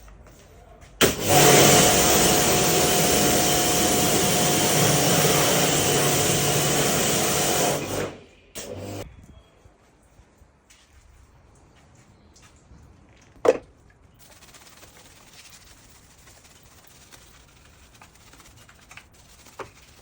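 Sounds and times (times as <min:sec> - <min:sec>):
pressure washer spraying: 0:01.0 - 0:09.0, 0:14.2 - 0:20.0.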